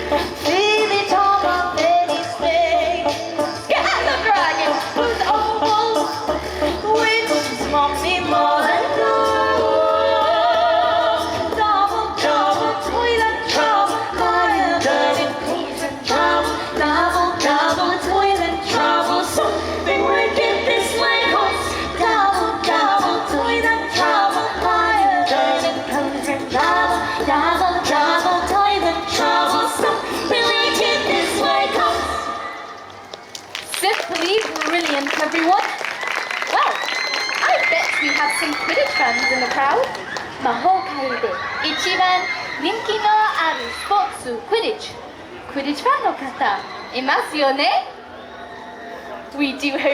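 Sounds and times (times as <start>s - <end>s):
choir singing a cappella: 0.0s - 32.7s.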